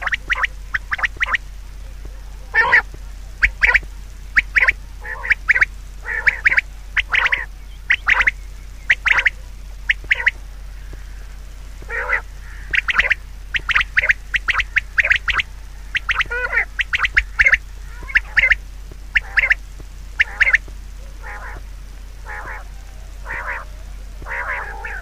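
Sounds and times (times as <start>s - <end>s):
birds calling: 0.0s - 25.0s
steady low hum: 0.0s - 25.0s.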